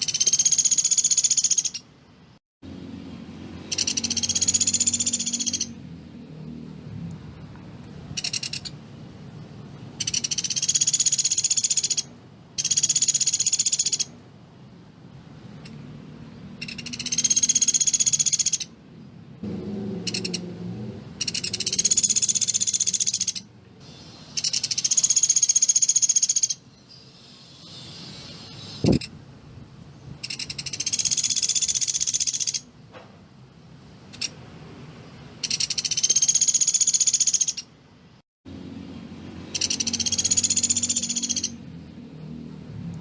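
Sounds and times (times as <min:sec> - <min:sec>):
woodpecker rattling trills: 0:00.0 - 0:01.9, 0:03.6 - 0:05.8, 0:08.1 - 0:08.8, 0:10.0 - 0:14.1, 0:16.6 - 0:18.7, 0:20.1 - 0:20.4, 0:21.2 - 0:23.5, 0:24.3 - 0:26.6, 0:30.2 - 0:32.7, 0:35.4 - 0:37.7, 0:39.5 - 0:41.6.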